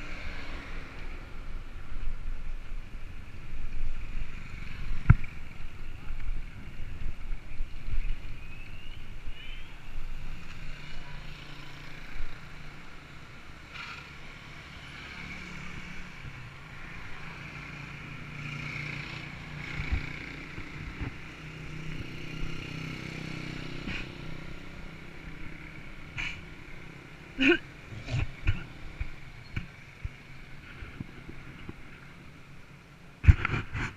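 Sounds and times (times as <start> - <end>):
traffic engine hum: 0.0 - 33.9.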